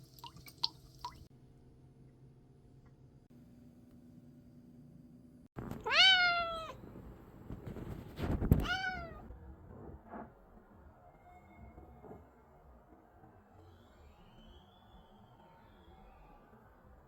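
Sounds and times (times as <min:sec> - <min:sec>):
cat meowing: 0:05.8 - 0:06.8, 0:08.6 - 0:09.3.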